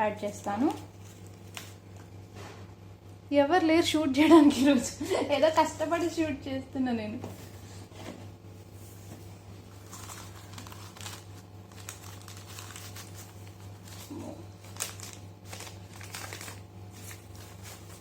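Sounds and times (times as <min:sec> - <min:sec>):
packaging crinkling and rustling: 0:00.4 - 0:02.2, 0:08.7 - 0:18.0.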